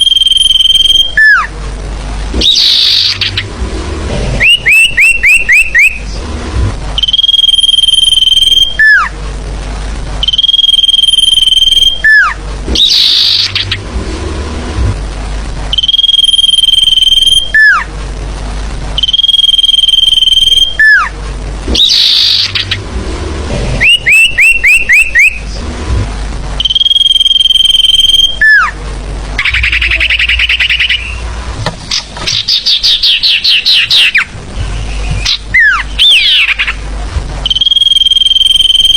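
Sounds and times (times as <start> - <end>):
buzzy chattering trills: 0.0 - 9.2, 10.2 - 18.0, 19.0 - 38.9
falling whistled notes: 4.4 - 6.0, 23.8 - 25.4.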